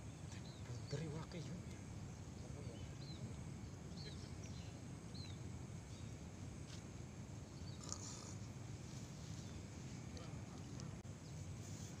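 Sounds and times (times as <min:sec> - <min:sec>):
faint low outdoor rumble: 0:00.0 - 0:12.0
bird chirping: 0:02.1 - 0:06.2.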